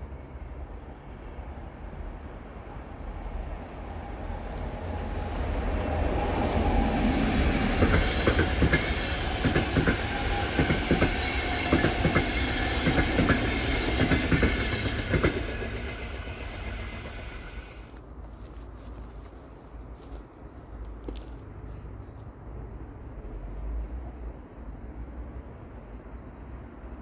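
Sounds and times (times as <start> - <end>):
train wheels clickety-clack: 4.3 - 19.4.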